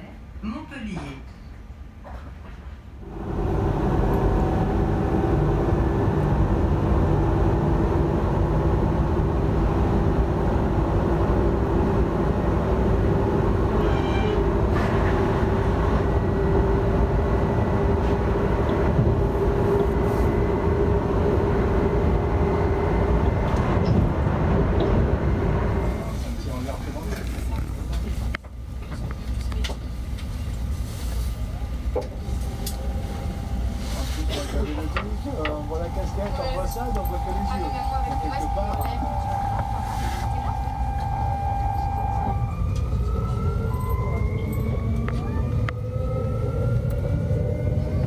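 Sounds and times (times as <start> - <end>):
train wheels rumbling: 1.6 - 48.0
steady hum: 32.0 - 42.5.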